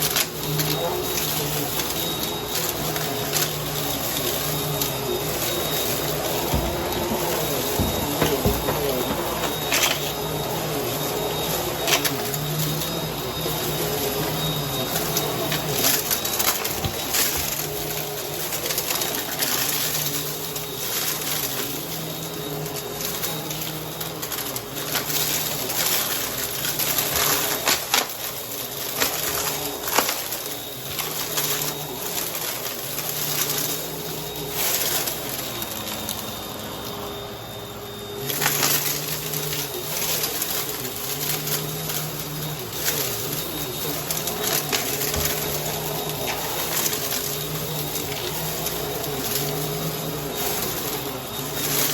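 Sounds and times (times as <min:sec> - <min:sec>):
vacuum cleaner motor humming: 0:00.0 - 0:51.9.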